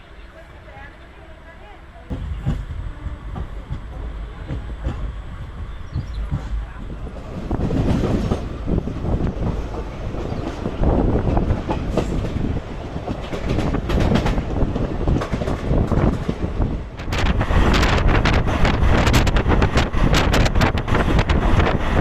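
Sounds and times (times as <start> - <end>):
train wheels rumbling and clattering: 2.1 - 22.0.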